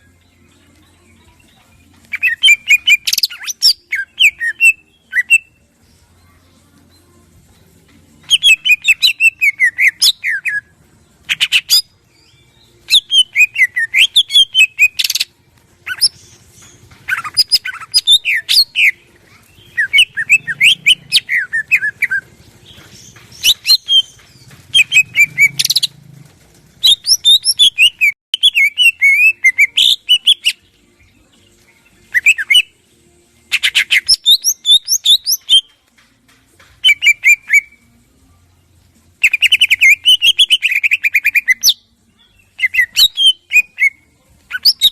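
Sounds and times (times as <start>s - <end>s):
bird singing: 0.0s - 5.6s, 8.2s - 10.7s, 11.3s - 26.0s, 26.8s - 32.8s, 39.2s - 44.9s.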